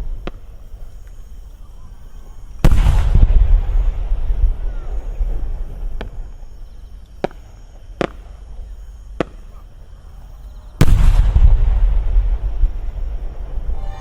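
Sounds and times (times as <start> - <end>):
faint firework cracks: 2.6 - 8.4, 9.1 - 9.6, 10.8 - 13.6.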